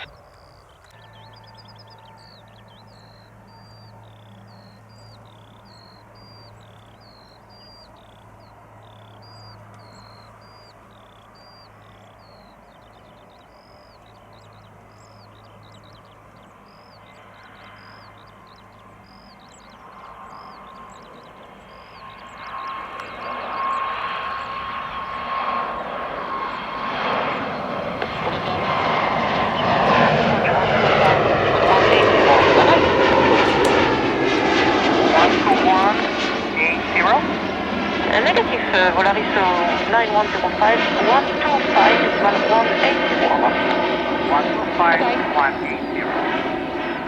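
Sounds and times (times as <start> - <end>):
small bird chirping: 0.0 - 24.5
jet engines powering up: 27.5 - 47.0
steady low hum: 27.5 - 47.0.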